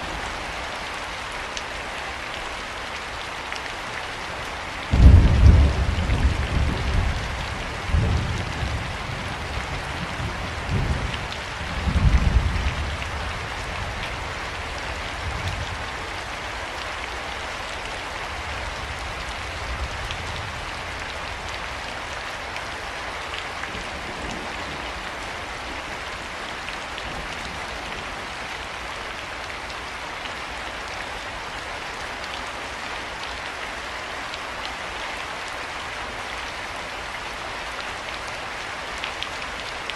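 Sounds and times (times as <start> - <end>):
steady rain falling: 0.0 - 39.9
low rolls of thunder: 4.9 - 12.9.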